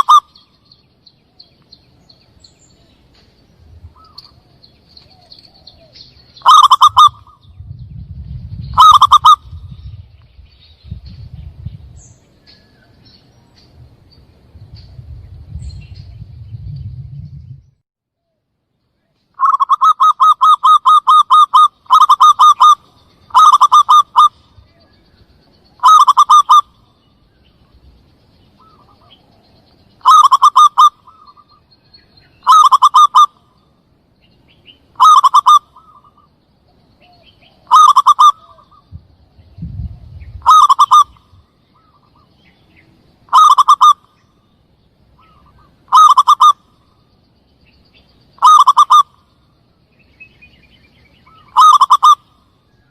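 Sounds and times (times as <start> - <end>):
dove cooing call: 0.0 - 0.5, 3.8 - 7.7, 8.4 - 10.0, 19.4 - 25.0, 25.8 - 26.8, 28.5 - 31.6, 32.4 - 33.5, 34.9 - 36.3, 37.0 - 39.0, 39.6 - 42.3, 43.3 - 44.2, 45.2 - 46.9, 48.4 - 49.4, 51.2 - 52.5.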